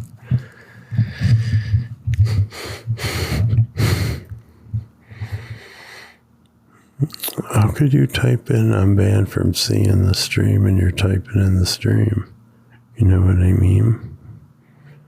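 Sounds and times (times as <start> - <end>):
person breathing and snorting: 0.0 - 6.2.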